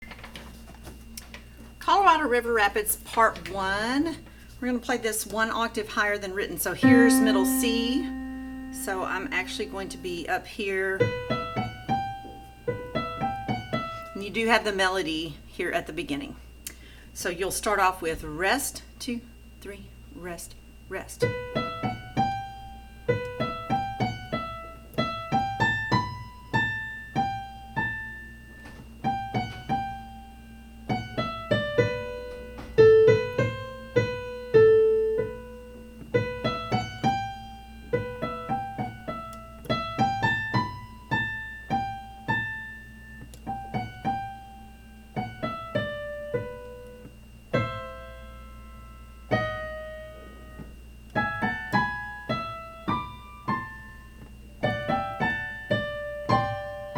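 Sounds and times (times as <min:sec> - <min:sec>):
piano melody: 0:06.8 - 0:10.4, 0:11.0 - 0:14.1, 0:21.3 - 0:50.2, 0:51.1 - 0:56.9.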